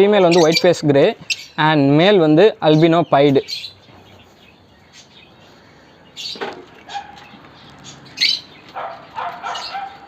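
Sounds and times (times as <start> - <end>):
cockatiels calling: 0.0 - 1.7, 6.2 - 10.0.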